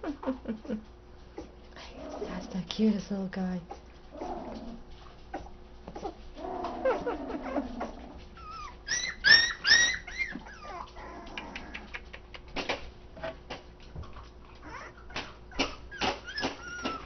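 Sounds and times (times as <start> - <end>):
puppies whining: 3.7 - 12.1, 14.4 - 17.0
high-pitched puppy yelps: 8.4 - 11.2, 14.6 - 17.0.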